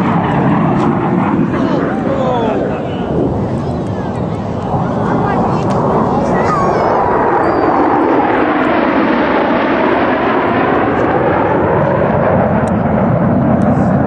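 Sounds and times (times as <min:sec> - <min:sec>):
jet aircraft engine: 0:00.0 - 0:14.0.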